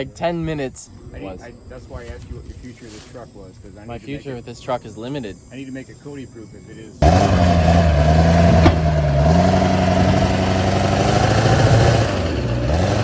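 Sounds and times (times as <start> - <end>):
truck engine revving: 7.0 - 13.0
sharp knock: 8.5 - 9.0.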